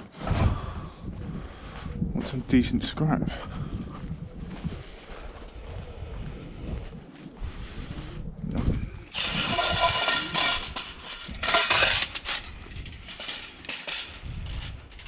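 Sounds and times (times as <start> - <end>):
scrap clattering and scraping: 9.1 - 15.0.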